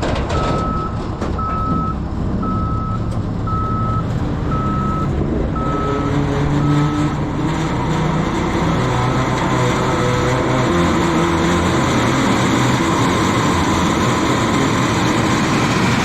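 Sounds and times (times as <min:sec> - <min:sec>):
heavy machine engine running: 0:00.0 - 0:16.0
backup alarm beeping: 0:00.3 - 0:07.0.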